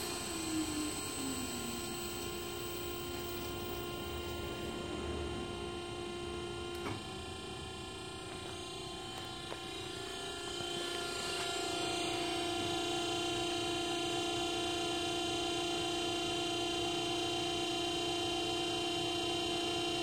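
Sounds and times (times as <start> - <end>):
machine hum with low rumble: 0.0 - 12.9.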